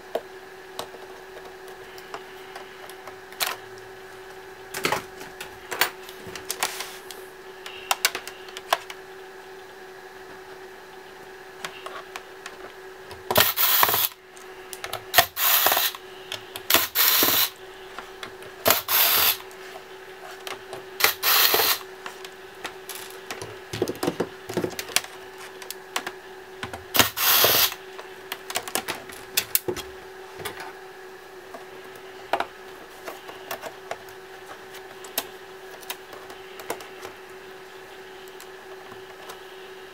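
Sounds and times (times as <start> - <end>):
cordless electric screwdriver running: 18.7 - 19.4, 21.0 - 21.8, 27.0 - 27.8
clicks and taps of plastic parts: 35.0 - 37.1.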